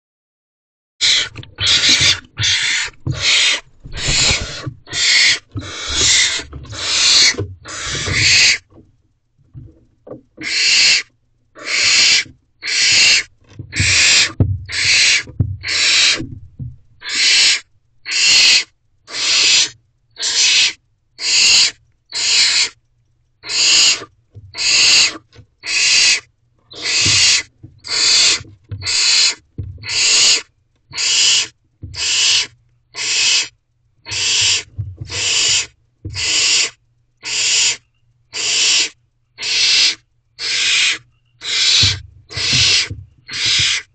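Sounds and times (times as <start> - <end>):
owlets hissing screeches: 1.0 - 8.7, 10.4 - 16.2, 17.0 - 22.8, 23.4 - 30.4, 31.0 - 33.5, 34.1 - 37.8, 38.4 - 43.9
low bumps: 1.3 - 10.4, 13.4 - 17.0, 34.7 - 35.2, 41.8 - 43.7.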